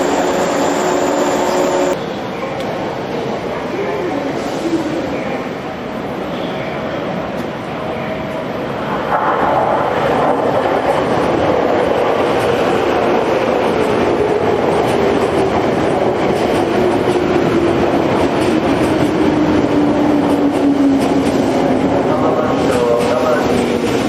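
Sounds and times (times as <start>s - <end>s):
electric train motor whine: 0.0s - 2.0s
train wheels rumbling on rails: 0.0s - 24.0s.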